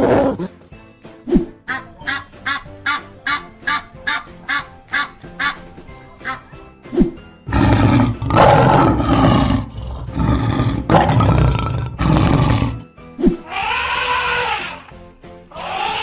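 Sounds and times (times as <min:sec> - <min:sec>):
background music: 0:00.0 - 0:16.0
lion roaring: 0:07.5 - 0:12.8.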